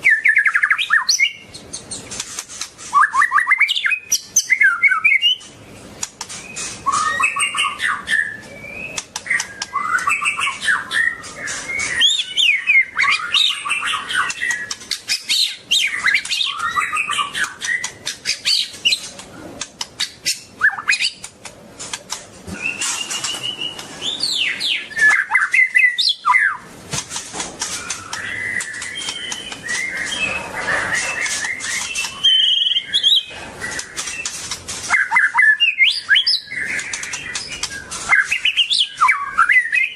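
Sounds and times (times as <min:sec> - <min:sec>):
bird singing whistled phrases: 0:00.0 - 0:01.4, 0:02.9 - 0:05.4, 0:06.5 - 0:19.0, 0:20.2 - 0:21.2, 0:22.6 - 0:26.6, 0:27.8 - 0:34.3, 0:34.9 - 0:39.9
sharp bird clicks: 0:00.2 - 0:07.7, 0:08.9 - 0:10.7, 0:13.0 - 0:39.8.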